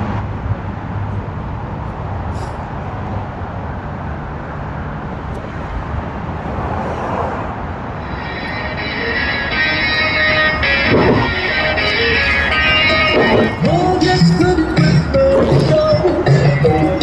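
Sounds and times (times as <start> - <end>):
road rumble: 0.0 - 17.0
wind on microphone: 5.0 - 8.1
music: 8.1 - 17.0.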